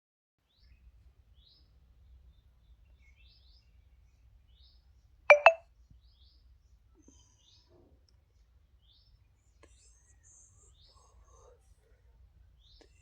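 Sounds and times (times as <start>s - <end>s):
small bird chirping: 4.5s - 6.4s.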